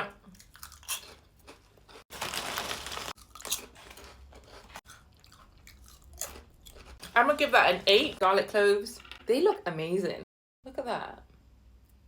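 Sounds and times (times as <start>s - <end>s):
person crunching crisps: 0.4s - 7.2s.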